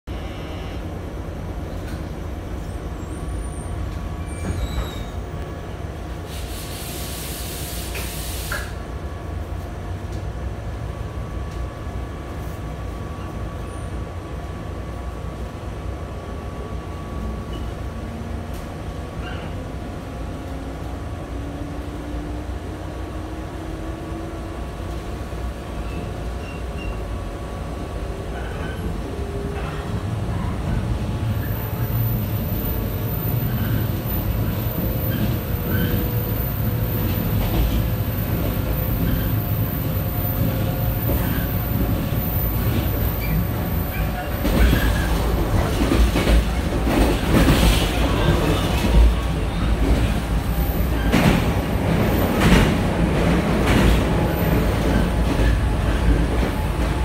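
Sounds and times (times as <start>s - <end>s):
wheels rumbling on rail: 0.1s - 57.0s
air hiss: 6.3s - 8.8s.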